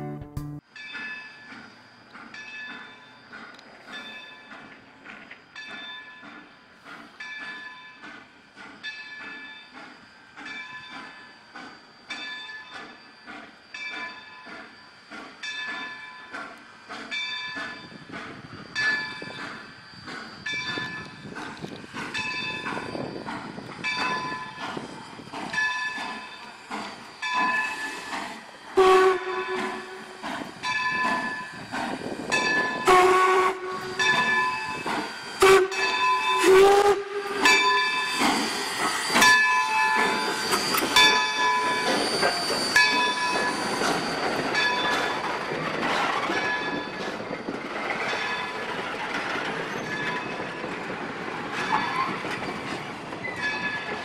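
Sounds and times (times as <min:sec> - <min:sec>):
steam hissing: 0:00.9 - 0:54.0
locomotive bell ringing: 0:05.5 - 0:06.3, 0:10.4 - 0:16.3, 0:17.1 - 0:28.2, 0:29.1 - 0:54.0
steam whistle blasts: 0:28.7 - 0:30.3, 0:32.6 - 0:44.2.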